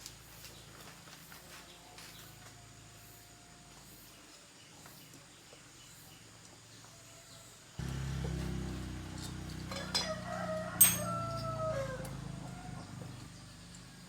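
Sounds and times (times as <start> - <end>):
low engine drone: 7.8 - 9.7.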